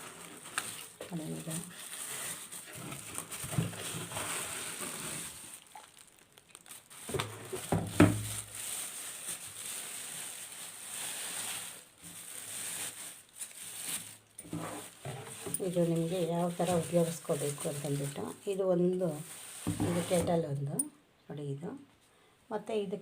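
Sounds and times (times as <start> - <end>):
rustling and crinkling packaging: 0.0 - 20.8.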